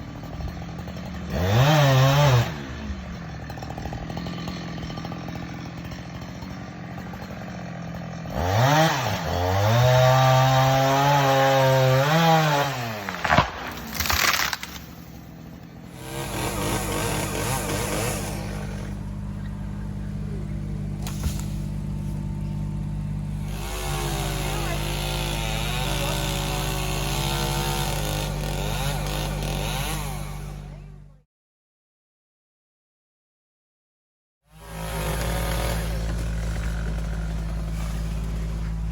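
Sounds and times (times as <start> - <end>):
chainsaw idling and revving: 0.0 - 31.2, 34.5 - 38.9
low engine drone: 14.7 - 24.8, 35.8 - 38.9.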